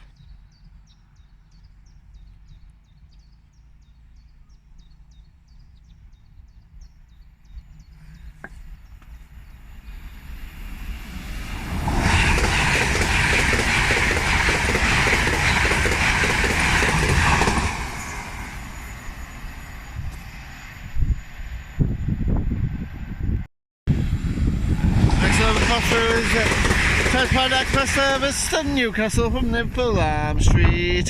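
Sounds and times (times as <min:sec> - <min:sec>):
bird chirping: 0:00.0 - 0:10.9
express train passing: 0:08.7 - 0:30.0.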